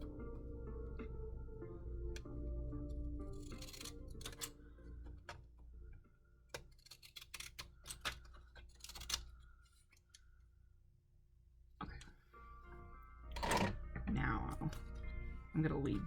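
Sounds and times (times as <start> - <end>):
scissor blades scraping paper: 3.2 - 4.6, 6.5 - 9.4.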